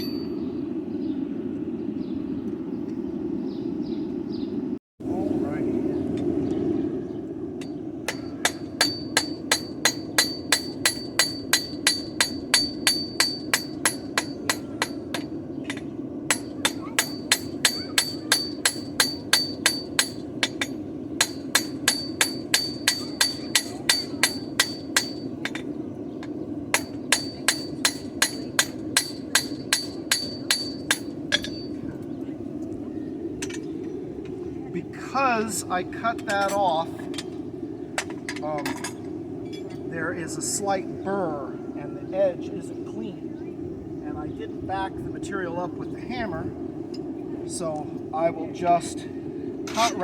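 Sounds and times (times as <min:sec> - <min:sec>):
hammer striking on an anvil: 0:00.0 - 0:00.3, 0:07.6 - 0:25.7, 0:26.8 - 0:31.8.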